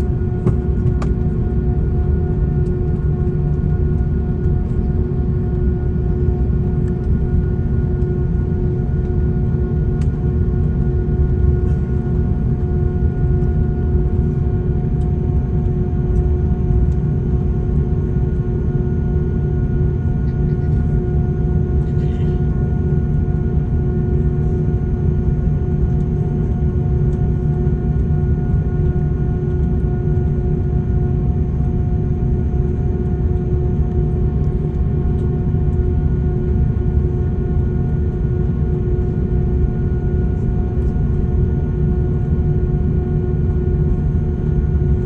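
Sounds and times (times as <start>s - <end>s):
airplane cabin engine rumble: 0.0s - 45.0s
droning hum: 0.0s - 45.0s.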